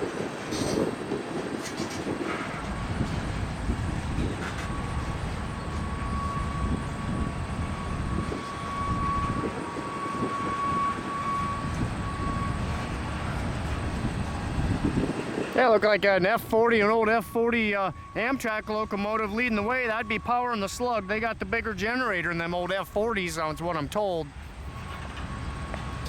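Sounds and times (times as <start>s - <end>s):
freight train rumbling on rails: 0.0s - 26.0s
high squeal: 2.8s - 15.0s, 16.7s - 22.8s.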